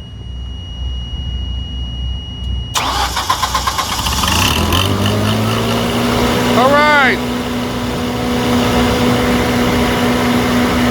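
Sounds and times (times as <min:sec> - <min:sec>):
generator engine starting: 0:02.5 - 0:08.3.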